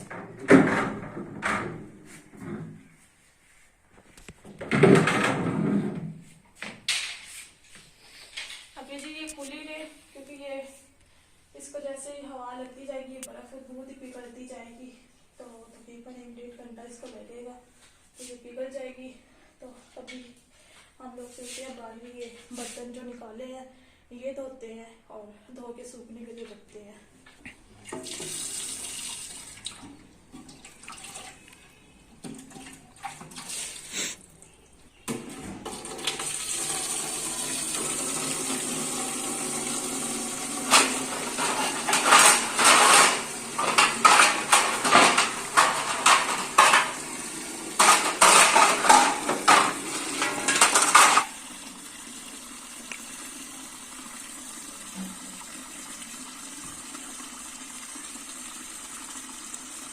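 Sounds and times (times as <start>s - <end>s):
tap water running: 27.8s - 31.6s, 35.1s - 59.9s
dishes clinking: 40.6s - 51.3s
dishes clattering under water: 40.6s - 51.4s.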